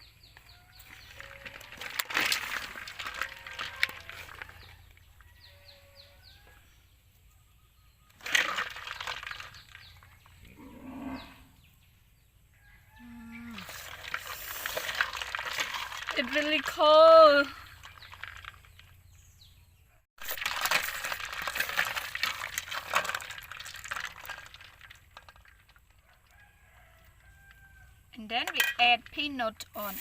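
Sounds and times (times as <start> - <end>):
small birds chirping: 0.0 - 1.8, 8.9 - 13.8, 16.1 - 20.0.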